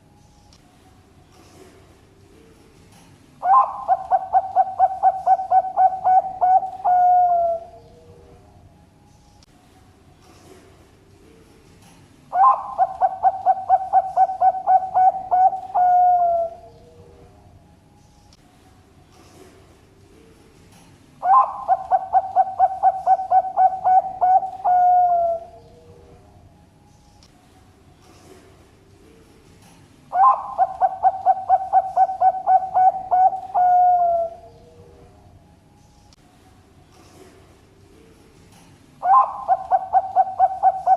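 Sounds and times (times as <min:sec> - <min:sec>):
dove cooing song: 0:03.4 - 0:08.5, 0:12.3 - 0:17.4, 0:21.2 - 0:26.3, 0:29.6 - 0:35.2, 0:38.5 - 0:40.9.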